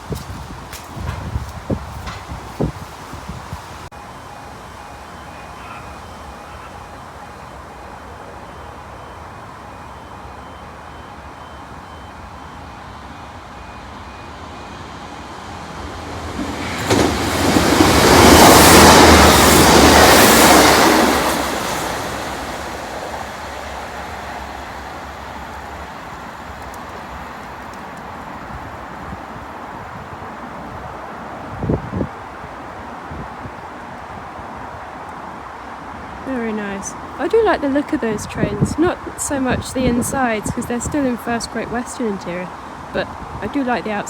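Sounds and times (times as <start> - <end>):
train passing at speed: 0.0 - 44.0.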